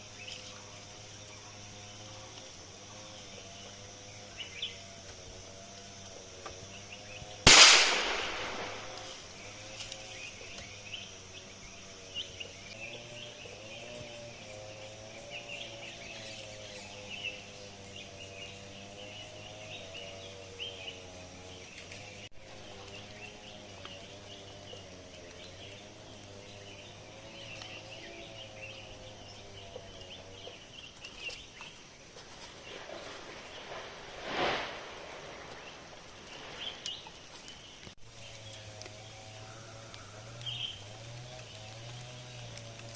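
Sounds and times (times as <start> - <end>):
insects chirping: 0.0 - 42.9
birds chirping: 6.3 - 42.9
gunshot with echo: 7.5 - 9.3.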